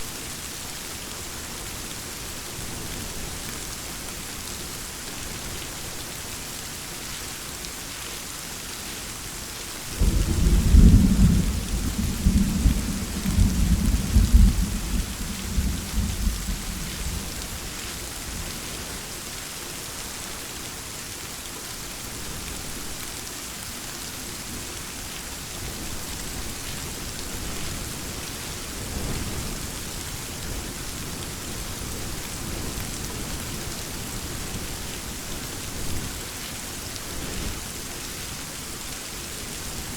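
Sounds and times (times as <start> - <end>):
heavy rain: 0.0 - 39.9
thunder rumbling: 10.0 - 17.7.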